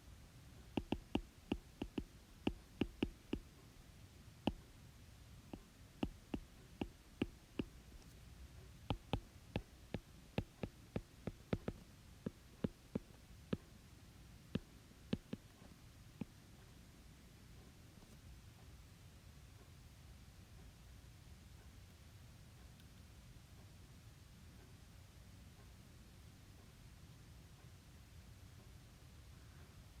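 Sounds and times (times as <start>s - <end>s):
faint low hum: 0.0s - 30.0s
sharp taps on hard surface: 0.8s - 3.5s, 5.5s - 7.8s, 8.9s - 13.7s, 14.5s - 15.5s.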